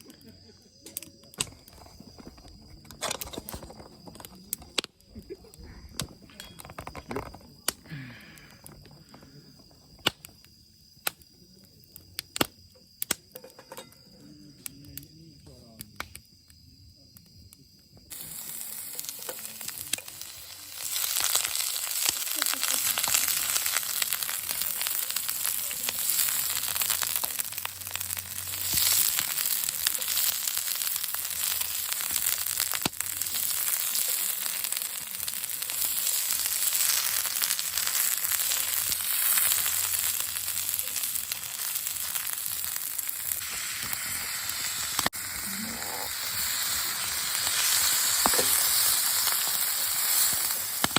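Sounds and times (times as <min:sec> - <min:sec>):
food sizzling in a pan: 0:18.0 - 0:50.9.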